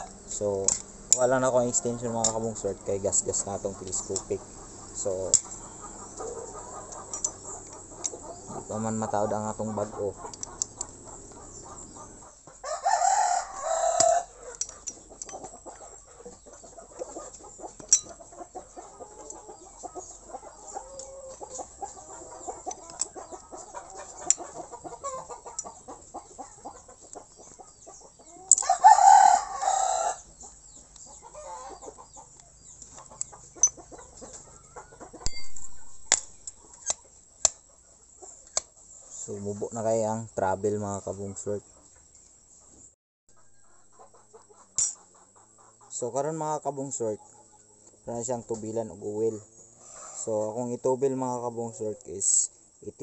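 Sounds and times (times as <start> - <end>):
rooster crowing: 12.6 - 14.7, 28.5 - 30.3.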